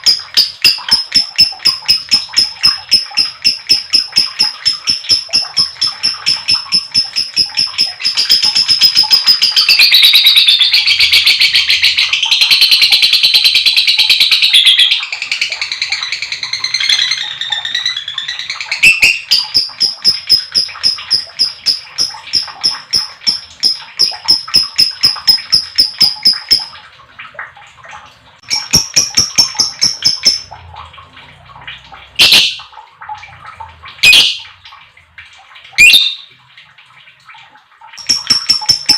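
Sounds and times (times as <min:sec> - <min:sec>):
lovebird chattering trill: 0:00.0 - 0:26.7, 0:28.4 - 0:30.5, 0:38.0 - 0:38.9
sharp bird calls: 0:00.0 - 0:26.7.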